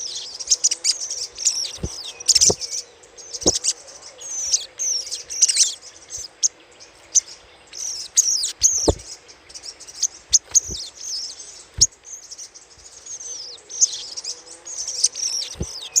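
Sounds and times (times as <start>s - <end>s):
bird chattering chirps: 3.3s - 6.5s, 10.0s - 11.0s, 13.2s - 16.0s
brief knocks: 8.8s - 9.0s.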